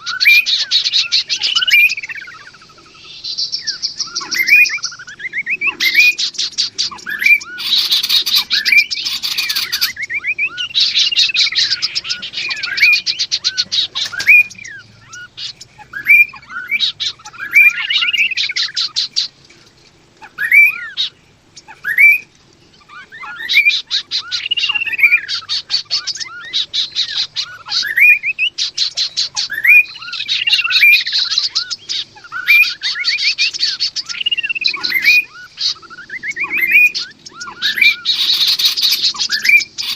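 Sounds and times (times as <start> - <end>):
birds whistling and rattling: 0.0 - 39.9.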